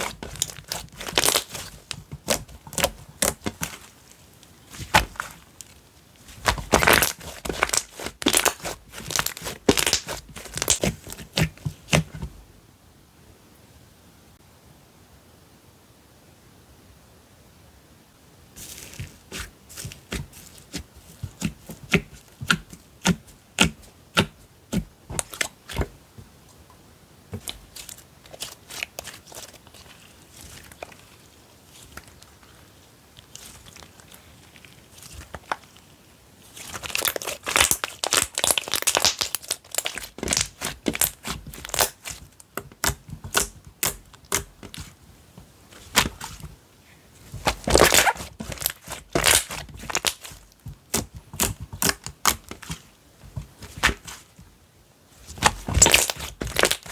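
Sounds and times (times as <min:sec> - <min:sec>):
slime squeezed and popping: 0:00.0 - 0:03.9, 0:06.3 - 0:12.1, 0:36.5 - 0:45.0, 0:45.7 - 0:46.5, 0:47.3 - 0:52.9, 0:55.3 - 0:56.9.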